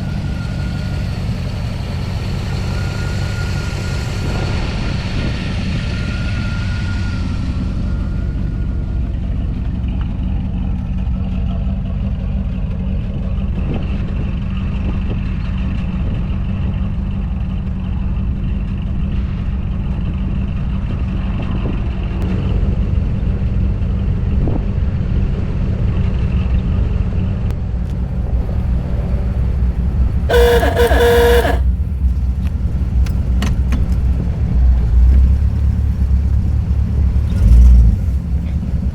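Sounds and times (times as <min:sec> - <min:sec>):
truck engine rumbling: 0:27.9 - 0:38.9
horn: 0:30.3 - 0:31.7.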